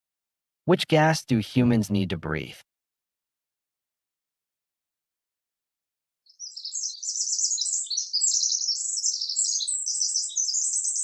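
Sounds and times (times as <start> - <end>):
songbird twittering: 6.3 - 11.0.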